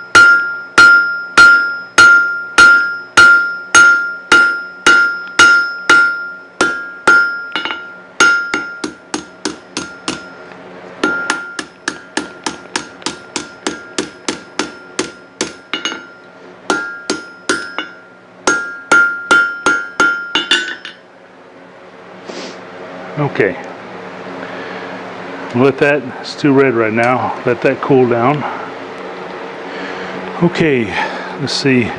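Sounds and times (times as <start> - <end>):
hammer striking steel on anvil: 0.0 - 21.0
low steady hum: 0.0 - 31.9.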